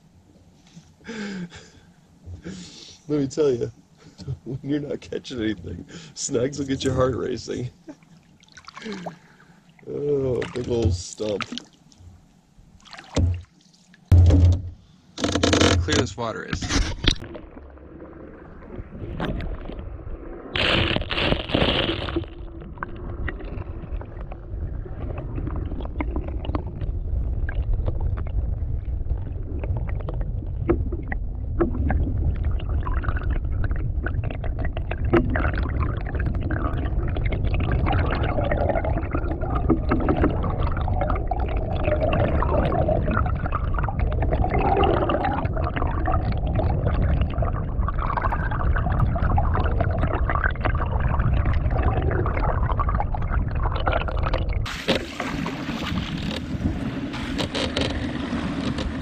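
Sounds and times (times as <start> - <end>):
water slapping canoe: 12.8 - 41.2, 53.8 - 59.0
knocks against hull: 13.1 - 13.5, 14.1 - 16.0.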